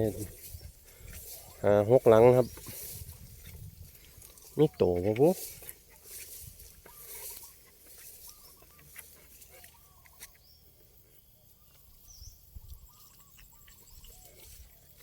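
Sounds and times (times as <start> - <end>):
animal chirping calls: 6.8 - 10.4.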